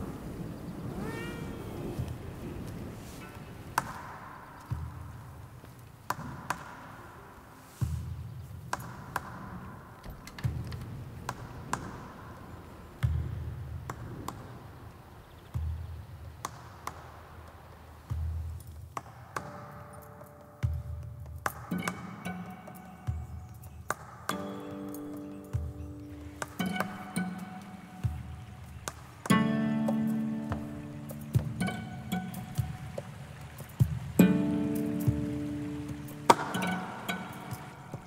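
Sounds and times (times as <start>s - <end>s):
cat meowing: 0.9s - 2.1s.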